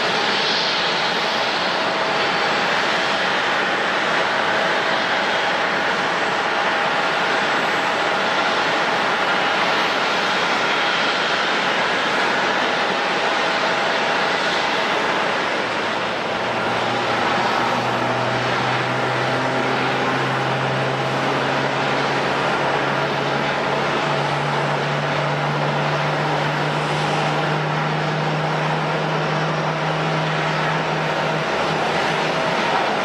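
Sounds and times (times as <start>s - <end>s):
jet engine rush and whine: 0.0s - 33.0s.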